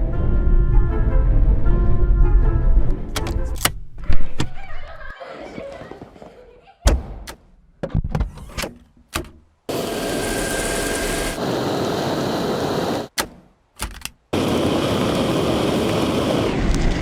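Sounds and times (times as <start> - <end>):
vacuum cleaner motor whooshing: 9.7 - 13.1, 14.4 - 17.0.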